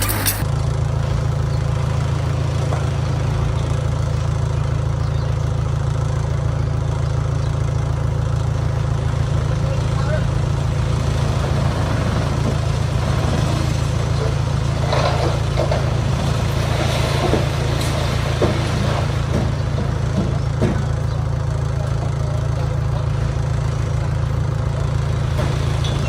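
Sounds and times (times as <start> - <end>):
knocks and clatters: 0.0 - 0.4
heavy diesel engine running: 0.0 - 26.0.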